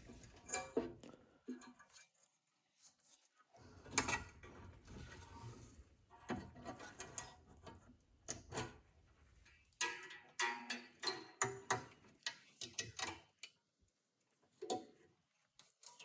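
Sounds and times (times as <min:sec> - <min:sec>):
clicks and knocks of parts: 0:09.8 - 0:13.6.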